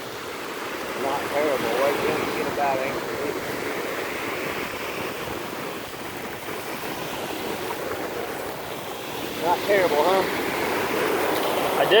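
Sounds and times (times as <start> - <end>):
surf washing around legs: 0.0 - 12.0.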